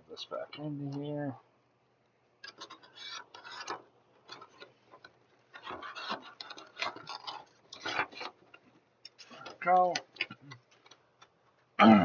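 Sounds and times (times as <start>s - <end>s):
handling packaging clicks and rustles: 2.4s - 11.6s.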